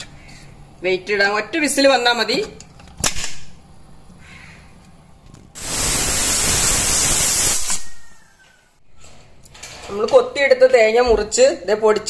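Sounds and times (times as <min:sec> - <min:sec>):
pressure cooker whistling steam: 0:05.6 - 0:08.3.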